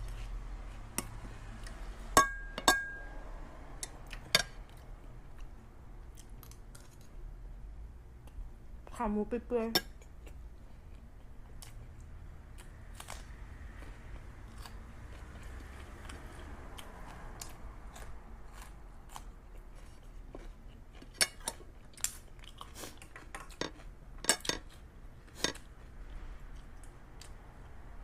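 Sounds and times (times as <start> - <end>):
person chewing: 10.0 - 27.4.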